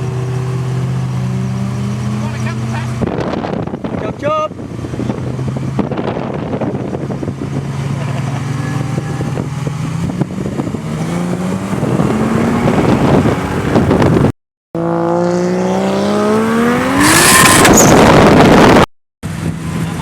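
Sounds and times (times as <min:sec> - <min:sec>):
car engine revving under load: 0:04.6 - 0:19.9.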